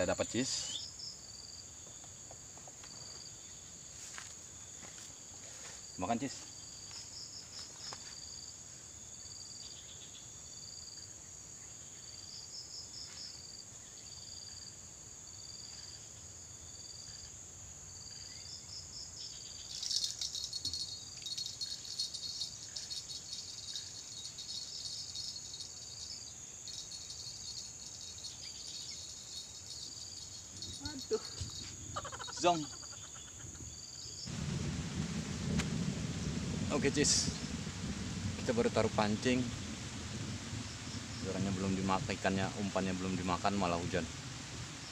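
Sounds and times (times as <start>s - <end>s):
insects droning: 0.0s - 44.9s
crackling rattle: 19.7s - 31.7s, 34.3s - 42.8s.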